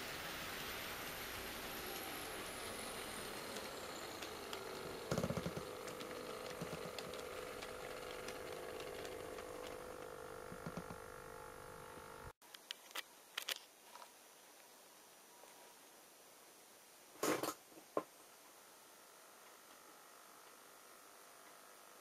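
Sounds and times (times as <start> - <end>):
model train rolling on track: 0.0 - 12.3
steady mechanical hum: 0.0 - 12.4.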